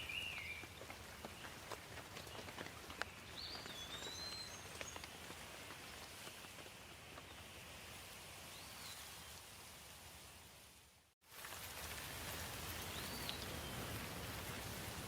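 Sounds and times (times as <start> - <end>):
bird chirping: 0.0 - 0.8, 3.0 - 5.2
light rain falling: 0.0 - 15.0.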